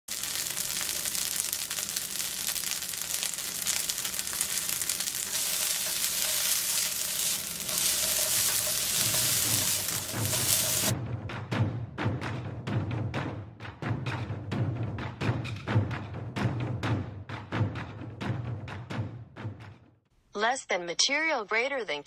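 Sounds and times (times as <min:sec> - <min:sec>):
noodles sizzling in a pan: 0:00.0 - 0:11.0
stirring in a pan: 0:00.1 - 0:11.0.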